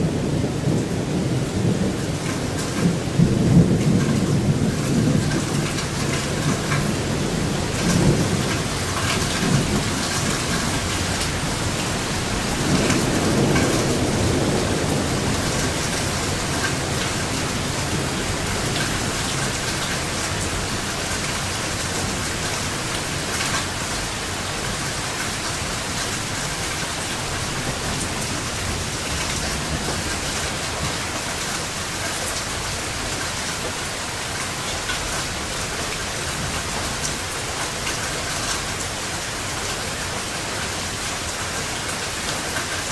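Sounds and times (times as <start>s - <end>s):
thunder rumbling: 0.0s - 31.1s
heavy rain: 0.0s - 42.9s.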